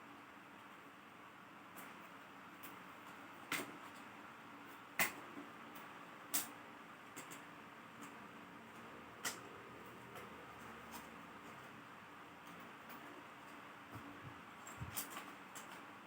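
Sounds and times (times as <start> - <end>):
tools and laptop parts clicking: 5.0 - 11.7, 12.4 - 15.9.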